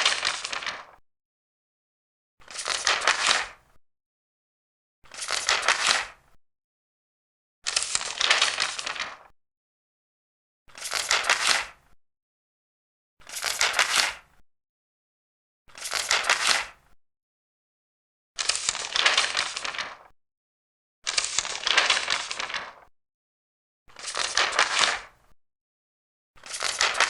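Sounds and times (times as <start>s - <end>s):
paper pages turning: 0.0s - 1.0s, 2.5s - 3.6s, 5.1s - 6.2s, 7.7s - 9.3s, 10.7s - 11.7s, 13.3s - 14.2s, 15.7s - 16.7s, 18.4s - 20.1s, 21.1s - 22.9s, 23.9s - 25.1s, 26.4s - 27.0s.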